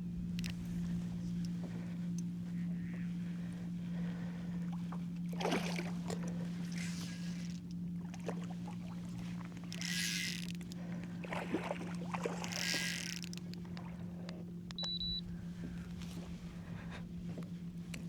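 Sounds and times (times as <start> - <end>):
low motor hum: 0.0 - 18.0
faint clicks: 0.2 - 5.0, 9.0 - 11.3, 11.9 - 16.3
short high beep: 14.8 - 15.2.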